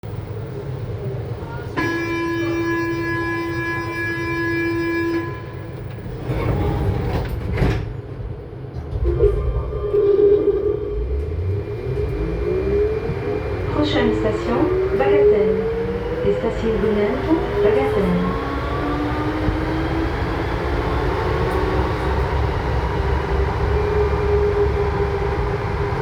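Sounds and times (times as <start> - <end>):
train doors shutting: 1.5 - 26.0
door closing warning tone: 1.8 - 6.9
train motors whining: 8.9 - 26.0.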